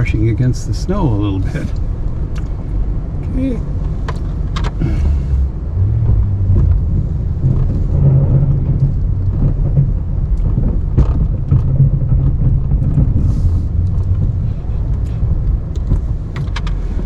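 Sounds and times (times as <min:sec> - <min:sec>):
pickup engine revving: 0:00.3 - 0:17.0
knocks and clicks: 0:05.8 - 0:17.0.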